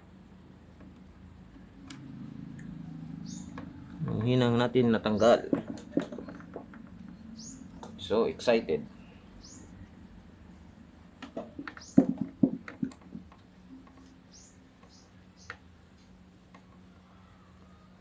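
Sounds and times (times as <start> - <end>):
faint low hum: 0.0 - 18.0
sharp clicks and taps: 11.2 - 14.1.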